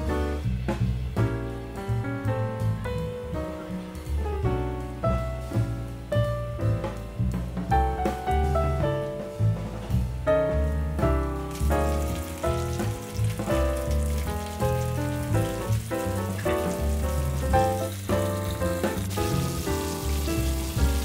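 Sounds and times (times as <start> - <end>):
background music with bass line: 0.0 - 21.0
fish frying in hot oil: 11.3 - 21.0.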